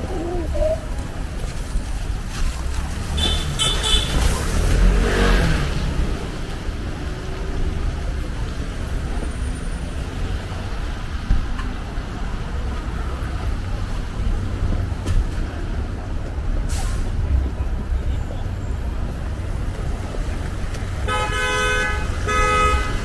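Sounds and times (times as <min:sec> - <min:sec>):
car passing: 0:00.0 - 0:11.2
traffic rumble: 0:00.0 - 0:23.0.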